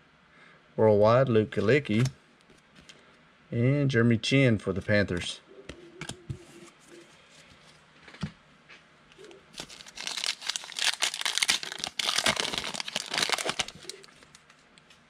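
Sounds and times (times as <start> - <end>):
foil wrapper tearing and crinkling: 9.6 - 14.4.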